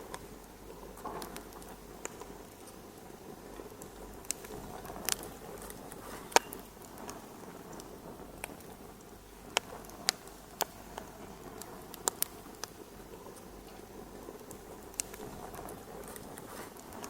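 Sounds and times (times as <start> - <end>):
fire popping: 0.0 - 17.0
wood fire hissing: 0.0 - 17.0.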